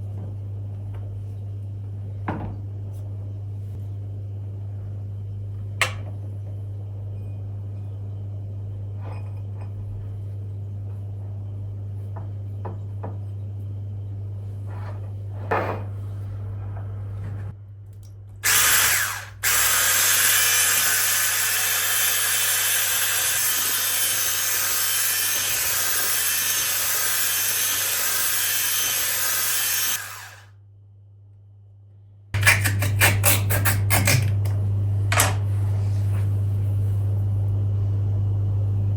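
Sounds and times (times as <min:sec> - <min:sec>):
kitchen appliance motor running: 0:18.4 - 0:30.5, 0:32.4 - 0:35.4.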